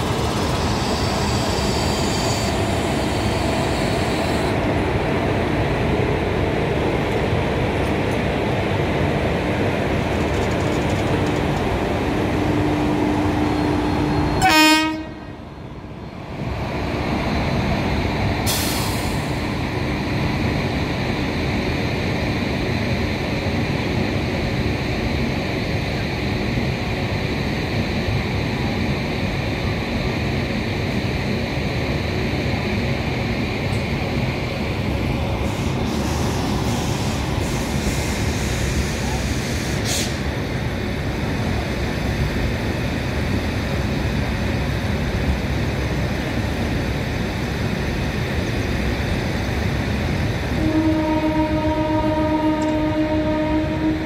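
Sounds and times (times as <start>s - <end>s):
train wheels rumbling on rails: 0.0s - 54.0s
train horn: 14.4s - 15.4s, 50.6s - 54.0s.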